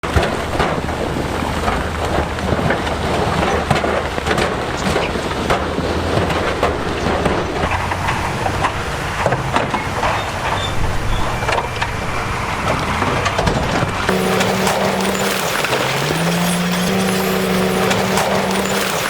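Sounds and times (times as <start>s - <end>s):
diesel construction machinery running: 14.1s - 19.0s
rock and metal clattering: 14.1s - 19.0s.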